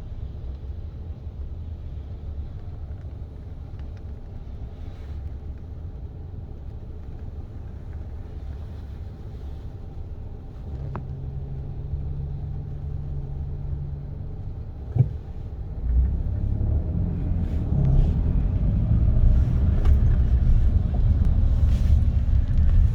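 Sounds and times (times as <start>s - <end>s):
car road noise rumbling: 0.0s - 22.9s
low hum: 14.7s - 22.9s.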